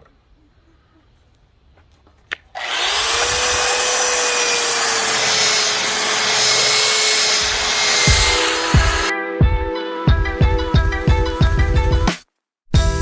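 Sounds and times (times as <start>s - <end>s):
electric sander whining: 2.6s - 9.1s.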